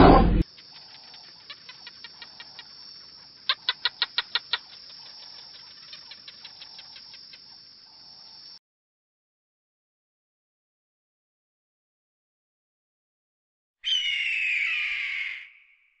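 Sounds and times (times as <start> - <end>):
animal chirping rapidly: 0.5 - 7.6, 13.8 - 15.8.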